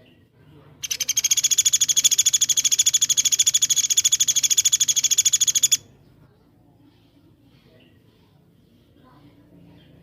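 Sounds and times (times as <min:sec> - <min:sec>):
songbird rapid trill: 0:00.8 - 0:05.9.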